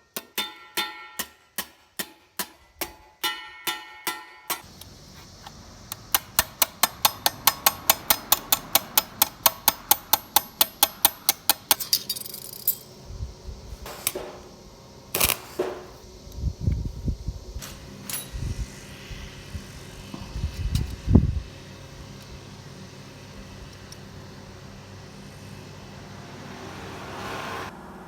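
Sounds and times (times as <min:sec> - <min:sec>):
sharp evenly spaced taps: 0:05.9 - 0:11.8.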